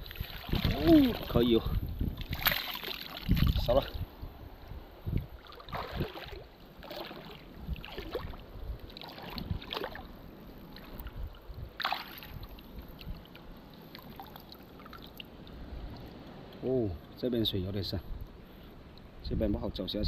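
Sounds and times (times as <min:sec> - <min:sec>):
seawater splashing and sloshing: 0:00.0 - 0:04.0, 0:05.1 - 0:16.5.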